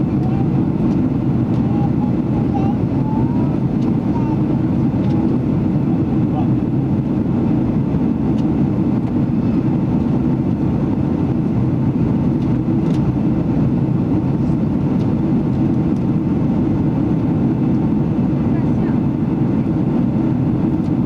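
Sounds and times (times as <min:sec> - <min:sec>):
airliner cabin engine drone: 0:00.0 - 0:21.0.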